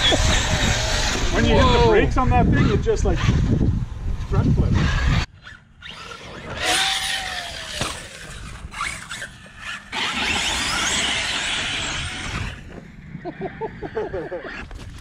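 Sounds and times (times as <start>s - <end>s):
rc truck motor whining: 0.0s - 1.5s, 4.7s - 13.0s.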